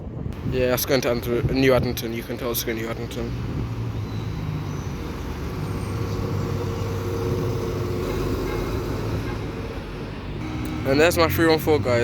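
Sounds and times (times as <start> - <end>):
bus engine hum: 3.1 - 12.0
steady mid-pitched tone: 10.4 - 11.8.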